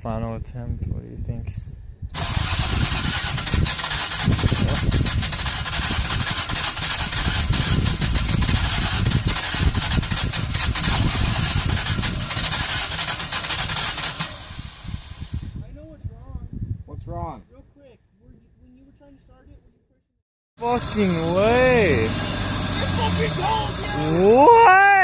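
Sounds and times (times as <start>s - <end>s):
car engine cranking: 2.2s - 15.4s, 20.6s - 25.0s.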